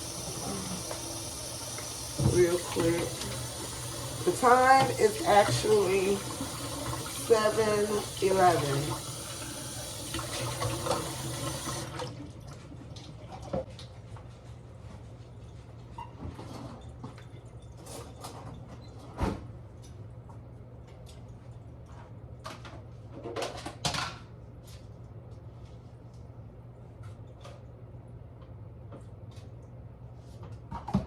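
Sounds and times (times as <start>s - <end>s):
water running from a tap: 0.0s - 12.3s.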